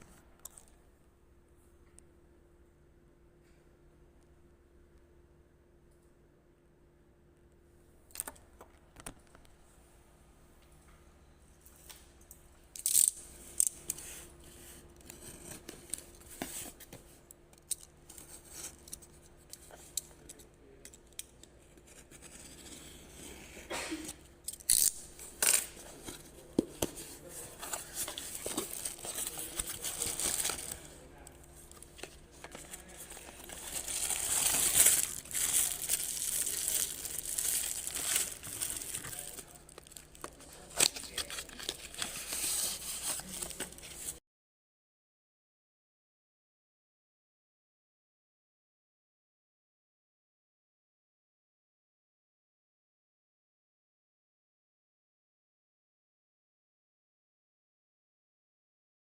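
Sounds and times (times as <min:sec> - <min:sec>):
packaging crinkling and tearing: 0:24.5 - 0:44.2.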